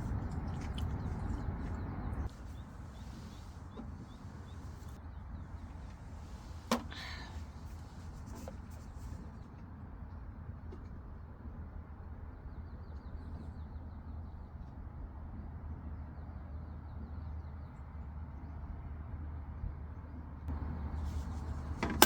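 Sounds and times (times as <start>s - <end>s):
steady low rumble: 0.0s - 5.0s.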